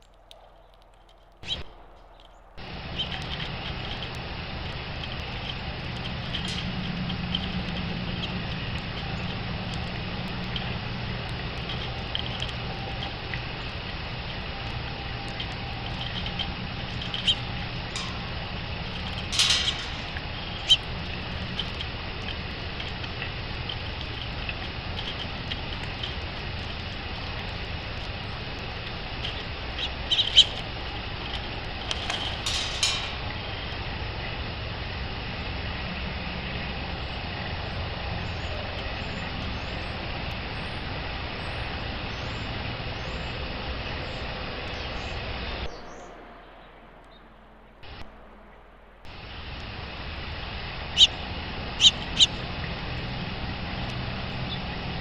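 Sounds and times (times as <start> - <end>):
background hiss and rumble: 0.0 - 55.0
songbirds chirping: 0.0 - 55.0.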